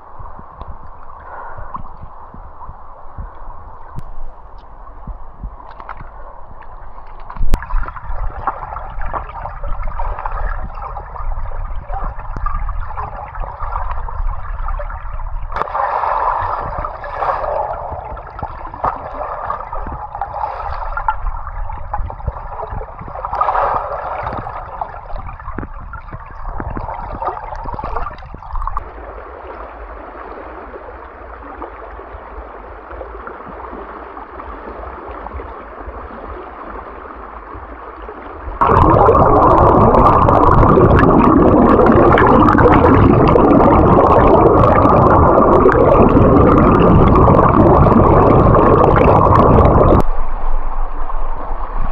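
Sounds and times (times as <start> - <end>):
water gurgling and sloshing: 0.0 - 51.9
water trickling: 38.6 - 50.0.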